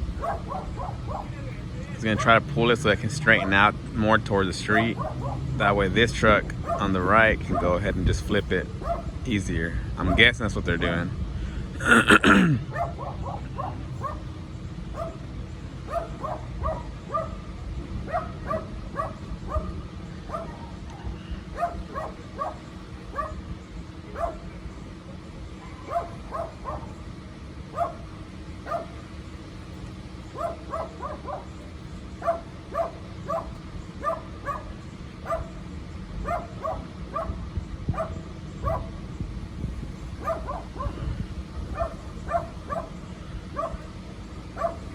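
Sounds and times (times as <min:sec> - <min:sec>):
dog barking in high yips: 0:00.2 - 0:01.3, 0:04.8 - 0:05.5, 0:06.6 - 0:06.9, 0:08.8 - 0:09.1, 0:12.7 - 0:14.2, 0:15.9 - 0:17.4, 0:18.1 - 0:20.8, 0:21.5 - 0:23.4, 0:24.1 - 0:24.4, 0:25.6 - 0:26.9, 0:27.7 - 0:28.0, 0:28.7 - 0:29.0, 0:30.4 - 0:31.6, 0:32.2 - 0:35.6, 0:36.2 - 0:38.9, 0:40.2 - 0:40.9, 0:41.7 - 0:42.9, 0:44.6 - 0:44.9.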